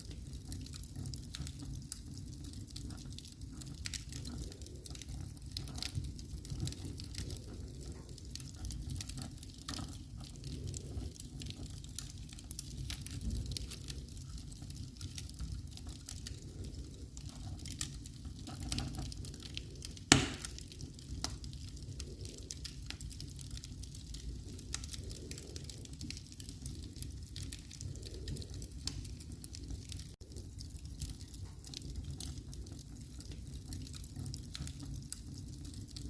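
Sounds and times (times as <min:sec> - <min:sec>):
wood fire crackling: 0:00.0 - 0:36.0
loud pop from fire: 0:20.1 - 0:20.6.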